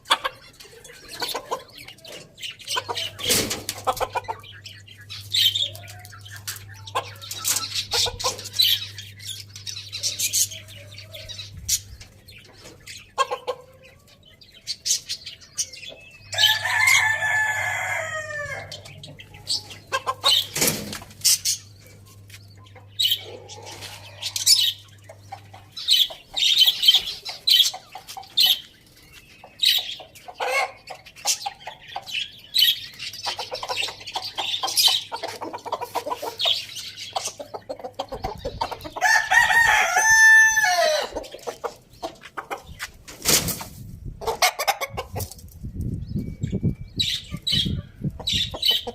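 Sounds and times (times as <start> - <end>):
chickens clucking: 0.0 - 48.9
rooster crowing: 16.4 - 18.8, 39.0 - 41.1.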